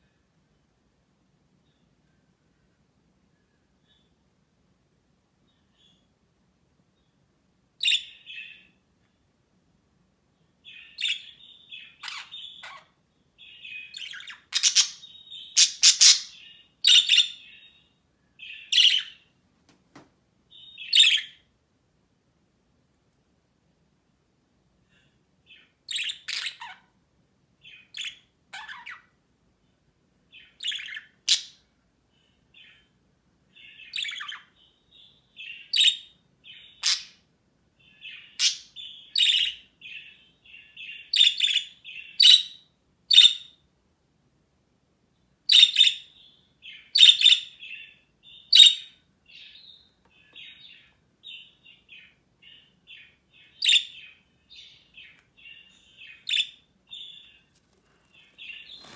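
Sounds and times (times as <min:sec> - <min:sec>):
budgerigars chirping: 0:11.0 - 0:12.9, 0:14.0 - 0:17.5, 0:25.9 - 0:26.8, 0:28.0 - 0:29.0, 0:30.6 - 0:31.6, 0:33.9 - 0:34.5, 0:35.4 - 0:37.2, 0:38.1 - 0:40.0, 0:45.5 - 0:46.1, 0:47.0 - 0:47.8, 0:48.6 - 0:49.5, 0:53.0 - 0:57.3, 0:58.1 - 0:58.9.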